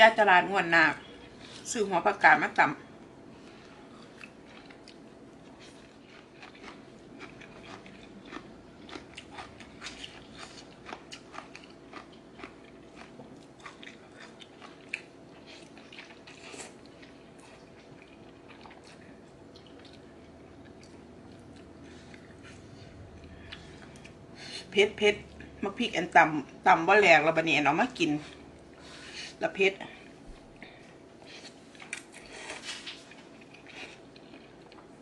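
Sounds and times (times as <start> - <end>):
chewing crunches: 3.9 - 24.2, 31.2 - 35.0.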